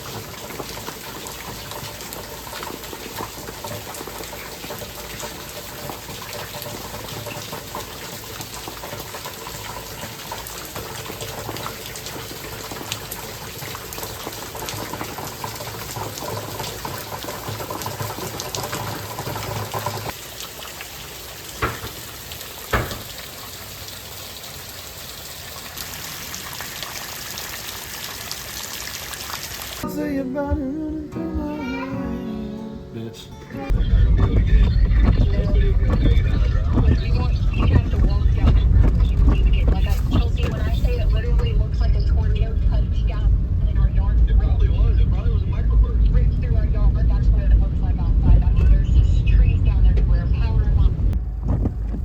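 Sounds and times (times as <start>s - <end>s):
rain falling steadily: 0.0s - 29.9s, 33.9s - 48.0s
sharp knocks: 21.6s - 22.0s, 22.7s - 23.2s.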